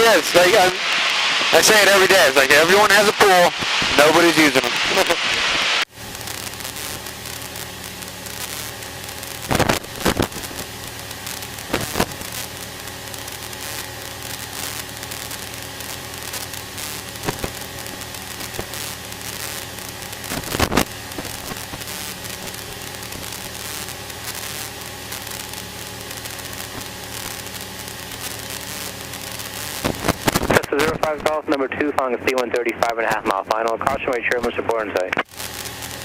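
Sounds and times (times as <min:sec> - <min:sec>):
aircraft engine hum: 0:00.0 - 0:30.5
intercom crackles: 0:00.0 - 0:36.0
intercom hiss: 0:00.0 - 0:36.0.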